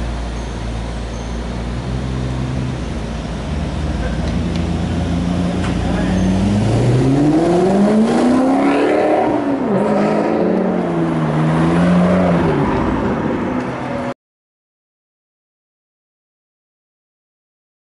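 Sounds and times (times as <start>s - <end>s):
car engine accelerating: 0.0s - 14.1s.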